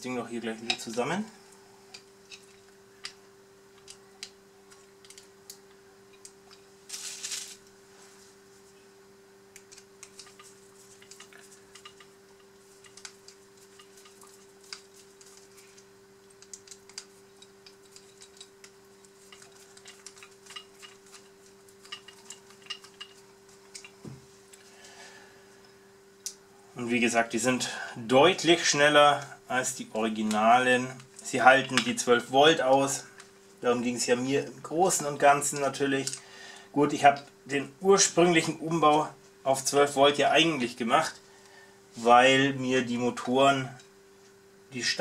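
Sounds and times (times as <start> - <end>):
steady low hum: 0.0 - 45.0
short rustle: 6.9 - 8.4
screwdriver and metal parts clicking: 16.4 - 24.0.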